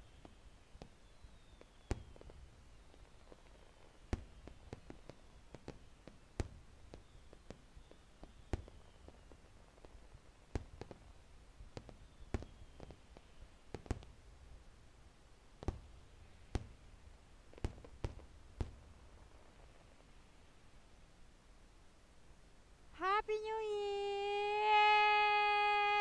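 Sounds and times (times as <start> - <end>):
distant fireworks bursting: 0.0 - 20.5.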